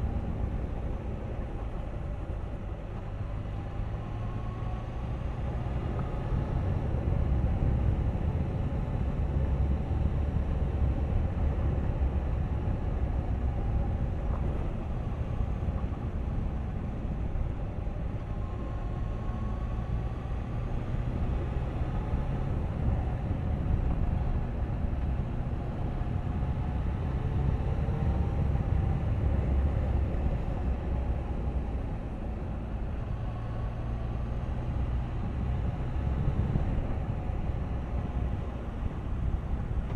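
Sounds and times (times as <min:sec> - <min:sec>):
wind noise on microphone: 0:34.7 - 0:39.9.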